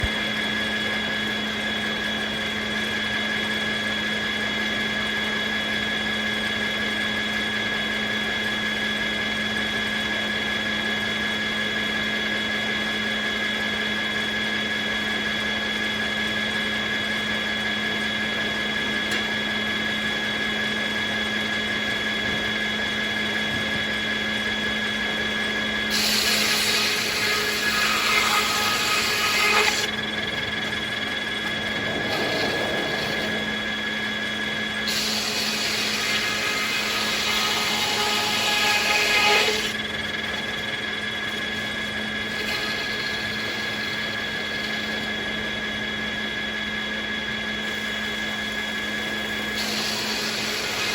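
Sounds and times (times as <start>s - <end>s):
saw blade whine: 0.0s - 50.9s
sawmill hum: 0.0s - 50.9s
saw blade cutting log: 25.9s - 30.0s, 34.8s - 39.8s, 42.2s - 45.1s, 49.6s - 50.9s.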